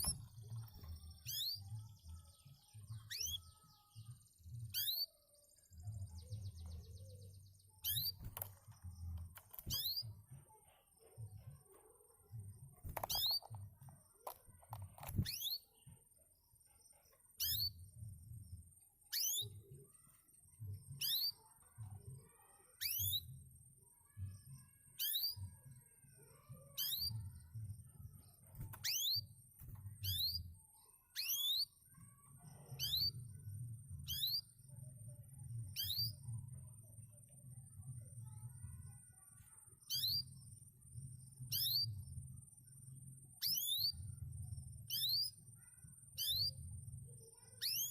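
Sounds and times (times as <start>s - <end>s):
canary whistled call: 43.4s - 44.0s.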